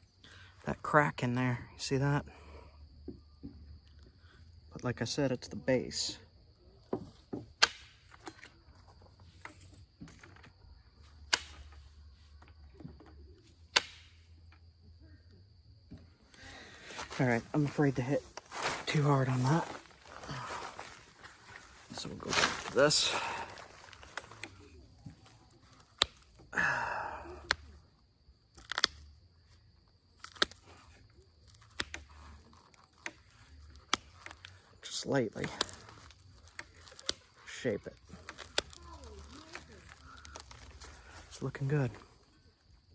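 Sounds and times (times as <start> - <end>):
stone knapping clicks: 28.6 - 29.0, 30.2 - 30.6.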